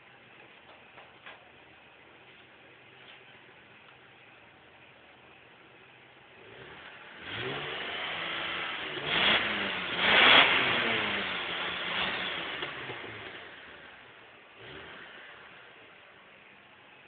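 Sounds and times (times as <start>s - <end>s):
car engine revving: 6.3s - 16.0s.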